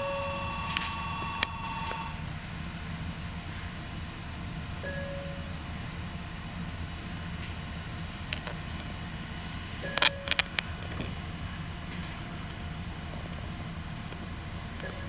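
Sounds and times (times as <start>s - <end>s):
train rumbling: 0.0s - 15.0s
faint clicks: 0.2s - 2.2s.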